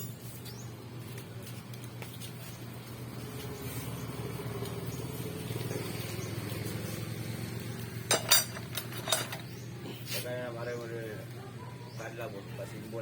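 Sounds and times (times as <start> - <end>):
small engine running: 3.1 - 9.6.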